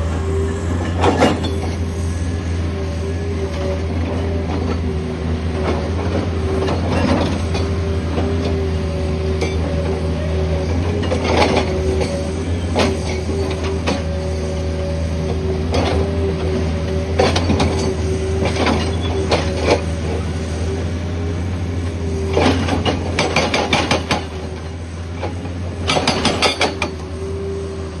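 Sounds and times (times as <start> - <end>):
heavy machinery engine running: 0.0 - 28.0
rock and metal clanking and scraping: 0.8 - 2.0, 5.6 - 8.6, 10.7 - 14.1, 17.0 - 20.2, 22.2 - 27.0.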